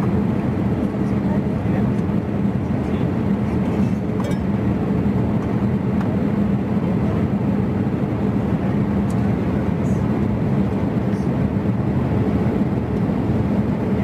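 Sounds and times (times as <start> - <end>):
airplane cabin noise: 0.0 - 14.0.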